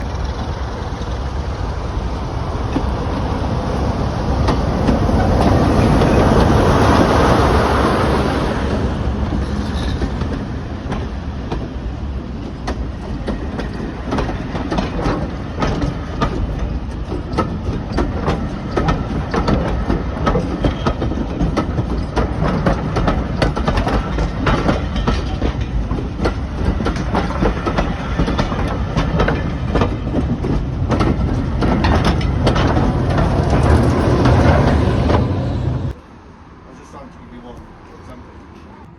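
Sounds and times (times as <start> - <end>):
wheels clicking over rail joints: 0.0 - 36.0
low train rumble: 0.0 - 38.9
train rushing: 0.0 - 38.9.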